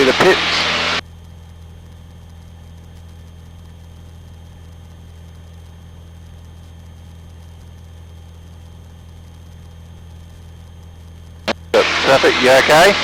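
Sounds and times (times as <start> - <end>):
aircraft piston engine droning: 0.0 - 1.0, 9.2 - 13.0
faint steady whine: 0.0 - 13.0.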